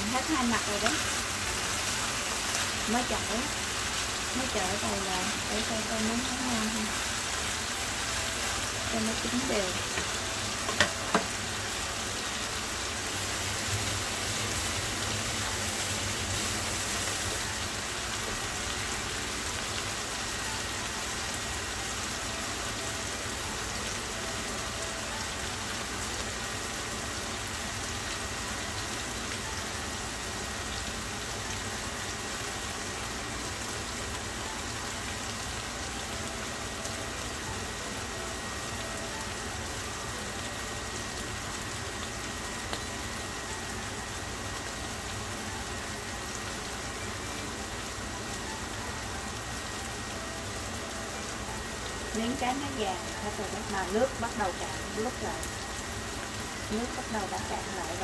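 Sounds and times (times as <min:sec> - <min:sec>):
fish sizzling in a frying pan: 0:00.0 - 0:58.0.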